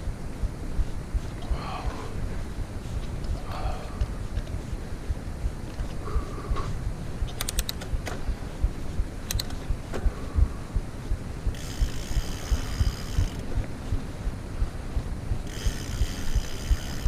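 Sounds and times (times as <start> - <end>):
steady buzzing: 0.0 - 17.0
bike bumps and rattles: 5.7 - 10.2
mechanical clicking: 7.3 - 8.2, 9.2 - 9.6.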